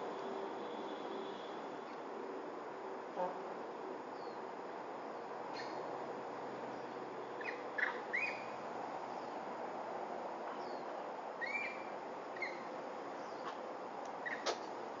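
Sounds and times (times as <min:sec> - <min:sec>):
steady background hiss: 0:00.0 - 0:15.0
small birds chirping: 0:05.2 - 0:05.9, 0:06.7 - 0:09.5, 0:10.5 - 0:14.6.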